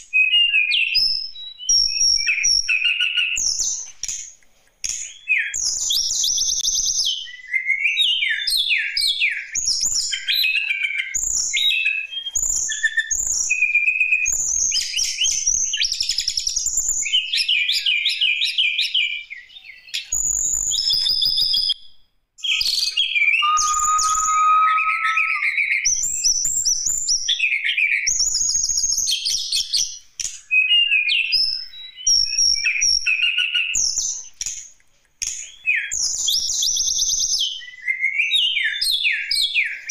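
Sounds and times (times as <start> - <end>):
songbird chirping and trilling: 22.4 - 25.7.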